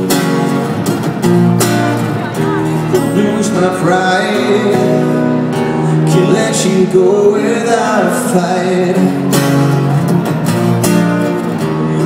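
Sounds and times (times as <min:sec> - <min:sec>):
pop-rock band music: 0:00.0 - 0:12.0
strummed acoustic guitar: 0:00.0 - 0:12.0
person singing: 0:02.2 - 0:09.4.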